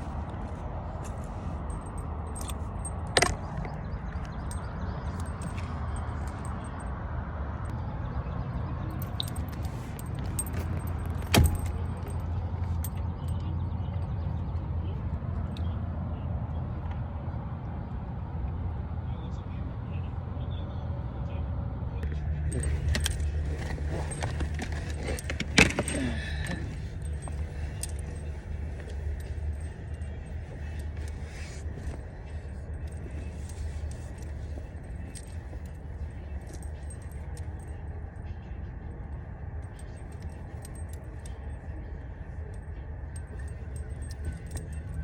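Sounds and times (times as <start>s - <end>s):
things rattling inside a car: 0.0s - 6.7s, 8.8s - 14.2s, 22.1s - 38.6s, 39.6s - 45.0s
car engine humming: 8.8s - 15.8s, 22.1s - 39.0s.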